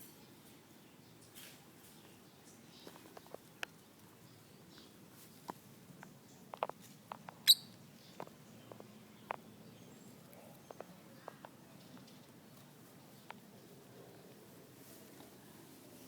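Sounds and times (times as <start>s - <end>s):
birds tapping and clicking: 1.2s - 13.7s
sharp high bird chirp: 7.5s - 7.7s.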